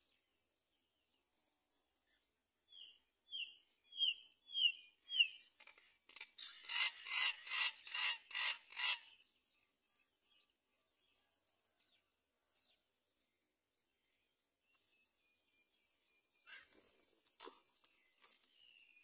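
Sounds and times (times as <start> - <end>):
harsh raspy bird calls: 3.9 - 9.3.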